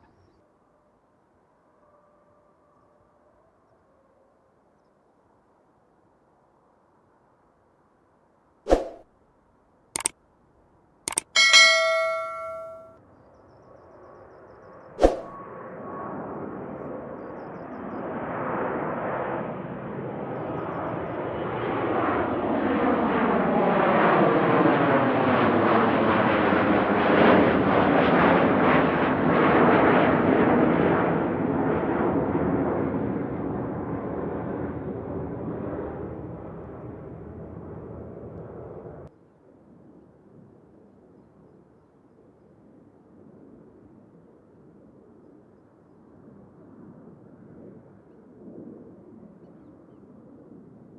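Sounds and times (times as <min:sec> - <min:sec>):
sharp click: 0:11.1 - 0:12.8
jet engines passing by: 0:15.1 - 0:39.1.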